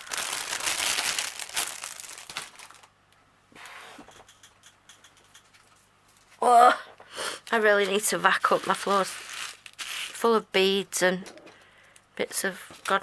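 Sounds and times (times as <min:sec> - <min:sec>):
plastic packaging crinkling: 0:00.0 - 0:03.0, 0:07.5 - 0:10.3.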